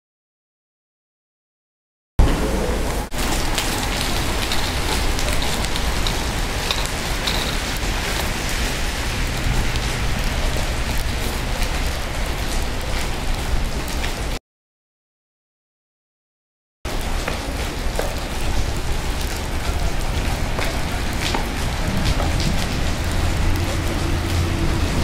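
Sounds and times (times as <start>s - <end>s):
low rumble: 2.2s - 14.3s, 18.7s - 25.0s
rain on wet pavement: 2.2s - 14.4s, 16.9s - 25.0s.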